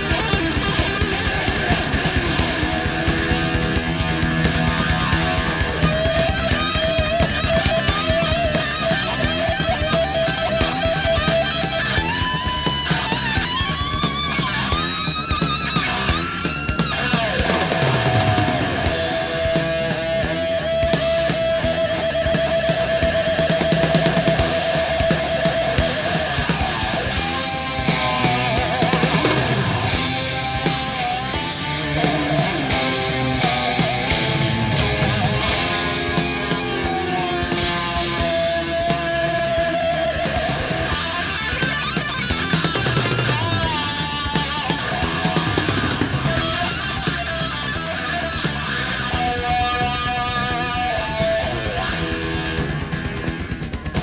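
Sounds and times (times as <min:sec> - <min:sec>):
bass and drum kit: 0:00.0 - 0:54.0
lead electric guitar: 0:00.0 - 0:54.0.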